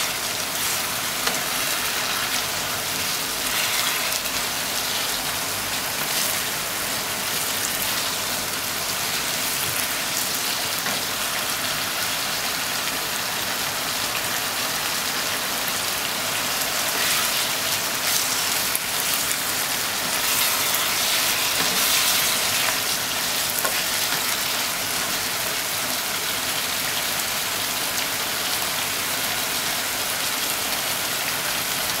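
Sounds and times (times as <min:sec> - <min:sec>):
spatula stirring: 0:00.0 - 0:08.3, 0:16.7 - 0:24.7
food sizzling in a frying pan: 0:00.0 - 0:32.0.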